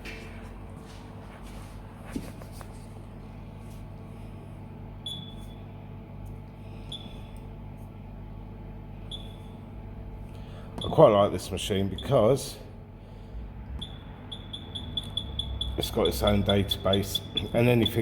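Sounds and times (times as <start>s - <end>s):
machine humming: 4.0s - 18.0s
short high beeps: 13.8s - 18.0s.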